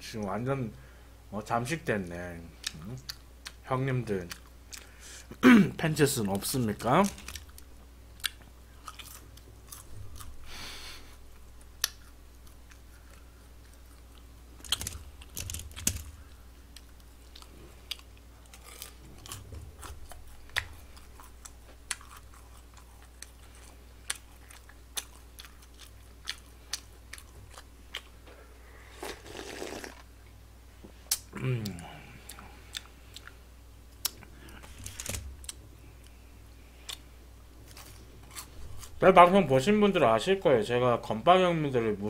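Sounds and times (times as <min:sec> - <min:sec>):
person chewing and biting food: 0:07.0 - 0:28.2, 0:31.1 - 0:33.4, 0:34.0 - 0:39.0.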